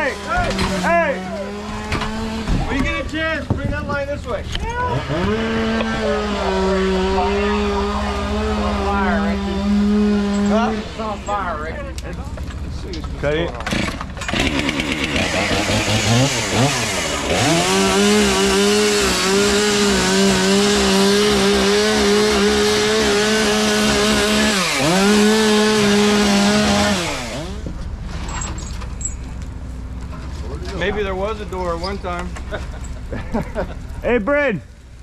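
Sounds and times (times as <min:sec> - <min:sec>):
two-stroke saw cutting: 0:00.0 - 0:03.1, 0:04.7 - 0:11.4, 0:13.6 - 0:27.8.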